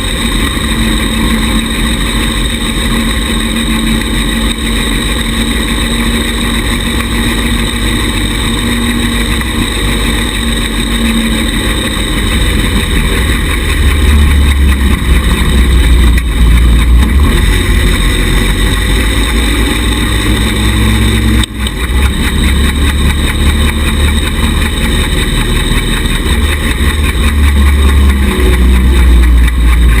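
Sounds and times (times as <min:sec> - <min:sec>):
small buggy engine rumbling: 0:00.0 - 0:30.0.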